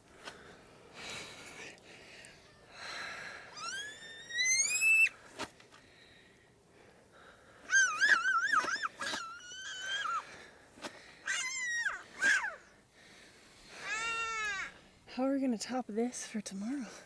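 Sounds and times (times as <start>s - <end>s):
dog whining: 7.7s - 10.2s.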